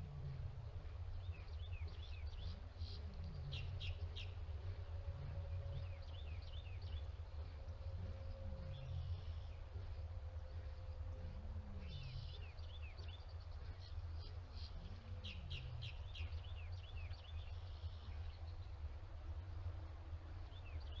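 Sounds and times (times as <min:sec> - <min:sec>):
steady low rumble: 0:00.0 - 0:21.0
small birds chirping: 0:11.8 - 0:18.6.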